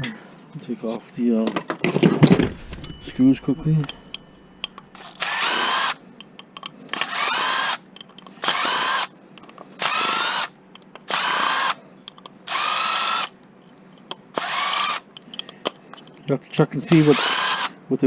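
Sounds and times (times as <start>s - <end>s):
power drill whining: 5.1s - 6.0s, 7.0s - 7.8s, 8.4s - 9.1s, 9.8s - 10.5s, 11.1s - 11.8s, 12.5s - 13.3s, 14.4s - 15.0s, 16.9s - 17.8s.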